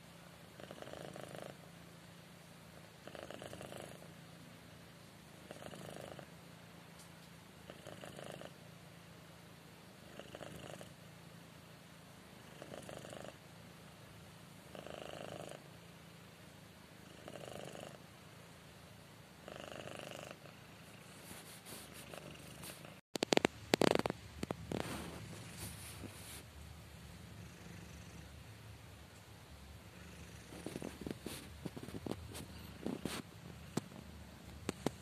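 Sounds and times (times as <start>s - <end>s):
cat purring: 0.5s - 2.2s, 3.0s - 4.3s, 5.2s - 6.4s, 7.6s - 8.7s, 10.0s - 11.1s, 12.3s - 13.5s, 14.6s - 15.9s, 17.0s - 18.6s, 19.4s - 28.7s, 29.7s - 35.0s
loud crackles and knocks: 23.2s - 26.1s.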